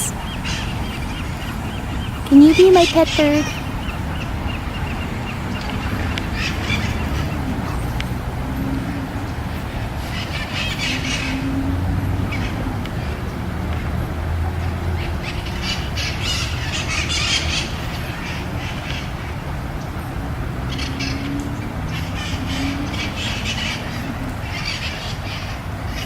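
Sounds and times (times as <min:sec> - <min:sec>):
birds harsh calls: 0:00.0 - 0:08.0, 0:15.0 - 0:19.4.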